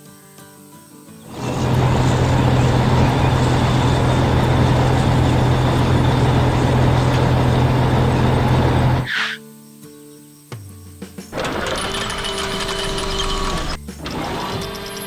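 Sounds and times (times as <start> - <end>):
heavy vehicle engine running: 1.3 - 9.1, 11.3 - 15.0.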